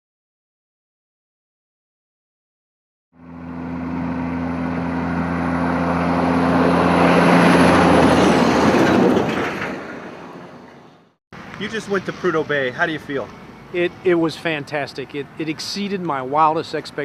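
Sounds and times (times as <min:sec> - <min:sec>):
vehicle engine approaching: 0:03.2 - 0:15.7.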